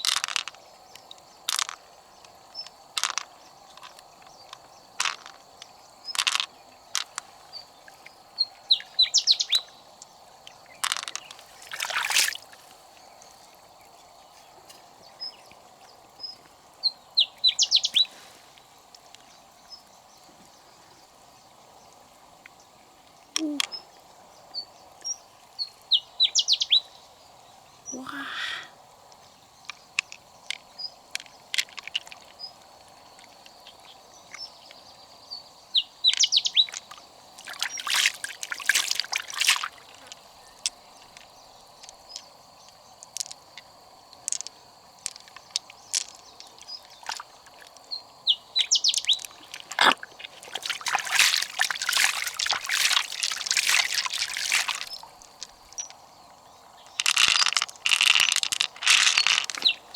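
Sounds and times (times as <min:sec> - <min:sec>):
water sloshing and trickling: 0:00.0 - 0:24.2, 0:36.0 - 0:56.1, 0:56.8 - 0:59.9
birds chirping: 0:05.9 - 0:18.6, 0:23.2 - 0:31.5, 0:33.7 - 0:43.0, 0:45.4 - 0:57.5.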